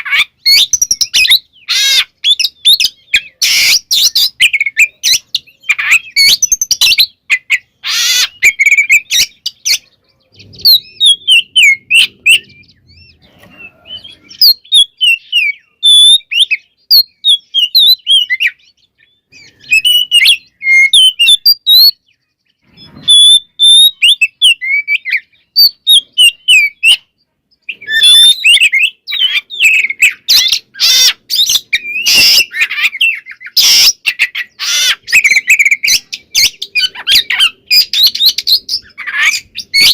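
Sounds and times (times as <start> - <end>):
harsh rasping bird calls: 0.0 - 39.9
songbird whistling varied song: 0.0 - 39.9.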